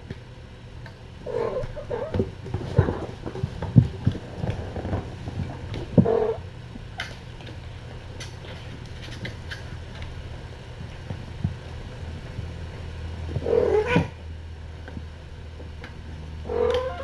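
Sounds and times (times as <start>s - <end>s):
steady low hum: 0.0s - 17.0s
cat meowing: 1.3s - 3.1s, 13.4s - 14.2s, 16.5s - 17.0s.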